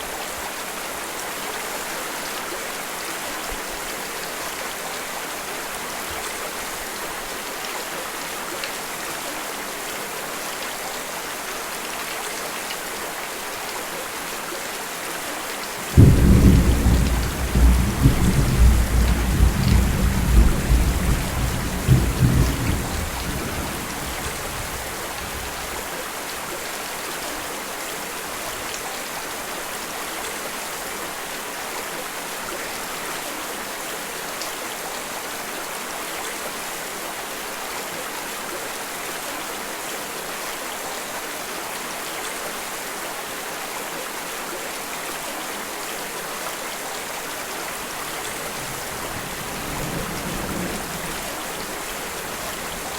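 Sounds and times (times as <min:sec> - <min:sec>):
steady rain falling: 0:00.0 - 0:52.9
thunder rumbling: 0:15.9 - 0:25.8, 0:48.4 - 0:52.9.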